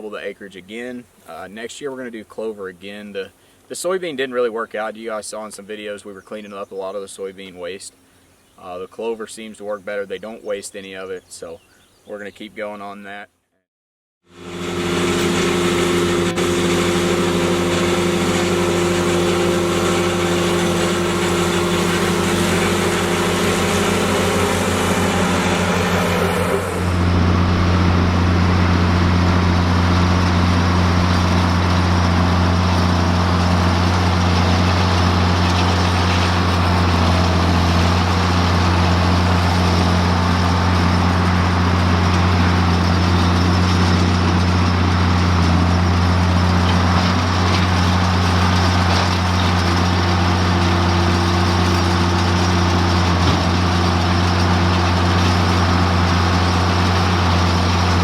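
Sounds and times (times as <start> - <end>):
tractor engine running: 14.3 - 58.0.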